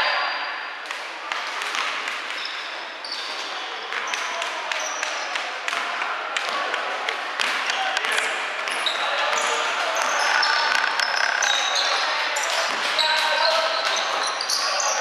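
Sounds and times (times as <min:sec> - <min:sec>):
sneaker squeaks: 0:02.3 - 0:05.2, 0:07.7 - 0:15.0.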